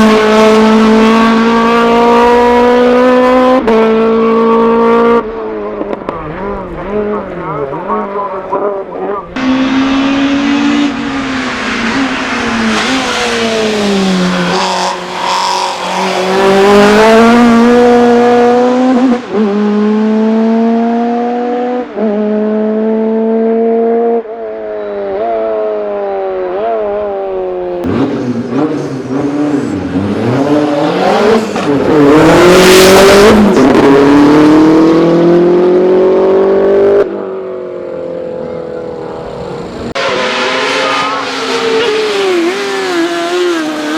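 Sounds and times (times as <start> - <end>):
race car engines revving: 0.0 - 43.9
car passing close: 9.4 - 21.8.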